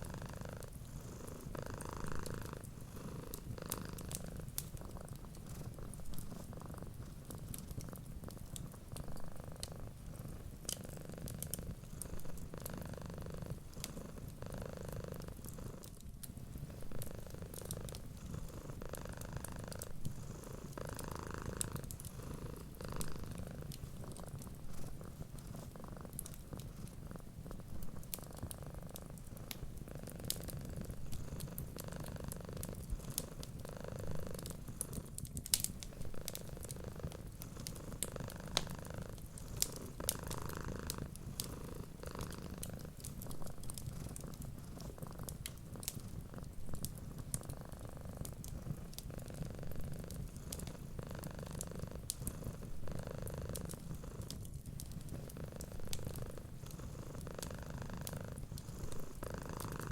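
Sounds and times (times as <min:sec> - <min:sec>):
cat purring: 0:00.0 - 0:59.9
wood fire crackling: 0:00.0 - 0:59.9.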